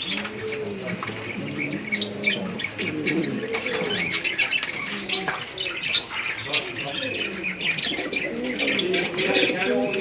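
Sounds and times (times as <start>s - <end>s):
pigeons cooing: 0.0s - 10.0s
small cage birds chirping: 0.0s - 10.0s.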